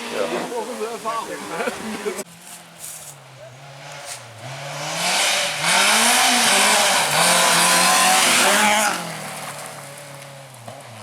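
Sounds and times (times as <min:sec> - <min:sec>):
tyre and road noise: 0:00.0 - 0:11.0
rally car engine revving: 0:03.2 - 0:11.0.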